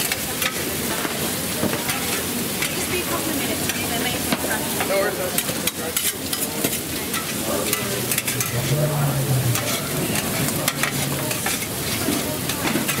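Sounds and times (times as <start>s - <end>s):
food sizzling and crackling in a pan: 0.0s - 13.0s
utensil scraping pan: 5.4s - 13.0s.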